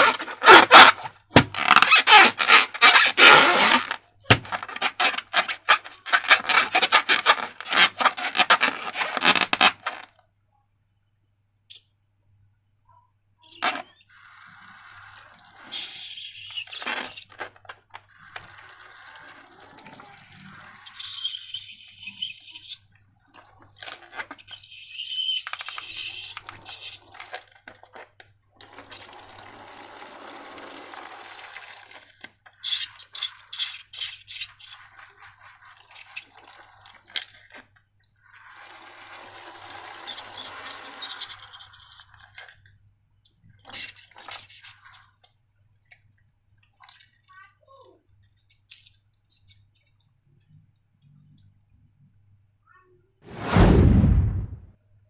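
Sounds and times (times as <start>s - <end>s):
liquid pouring and sloshing: 14.1s - 21.4s, 22.9s - 24.6s, 28.6s - 32.7s, 34.7s - 41.0s, 46.6s - 47.3s.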